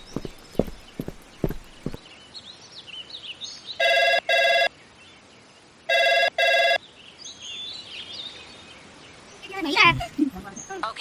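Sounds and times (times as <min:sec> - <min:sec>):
birds chirping faintly: 0:00.0 - 0:02.4
telephone ringing: 0:05.9 - 0:06.8.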